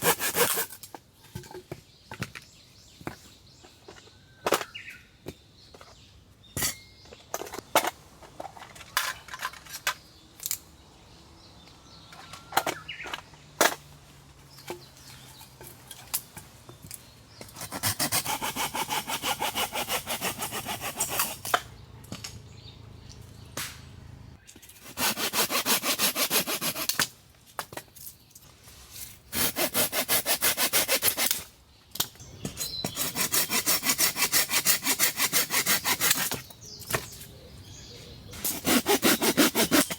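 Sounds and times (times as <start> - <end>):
saw cutting wood: 0.0 - 0.8, 17.6 - 21.7, 24.8 - 27.0, 29.3 - 31.4, 32.4 - 36.5, 38.4 - 39.9.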